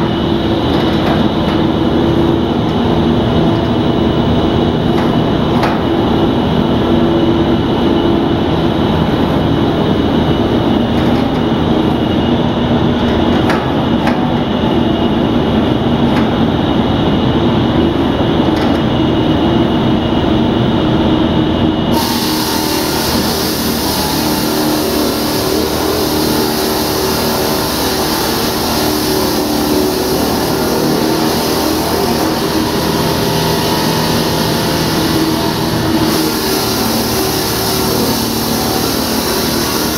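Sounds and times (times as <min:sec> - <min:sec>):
concrete cutting machine engine drone: 0:00.0 - 0:39.9
harsh hiss: 0:21.9 - 0:39.9.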